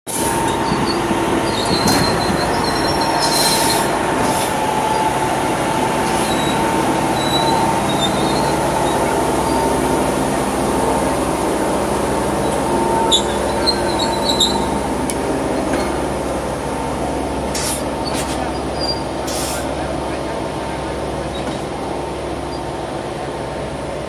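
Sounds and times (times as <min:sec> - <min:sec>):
machine engine droning: 0:00.1 - 0:24.0
steady high whine: 0:00.2 - 0:24.0
short metallic squeaks: 0:00.5 - 0:04.4, 0:13.0 - 0:14.7, 0:17.6 - 0:19.6.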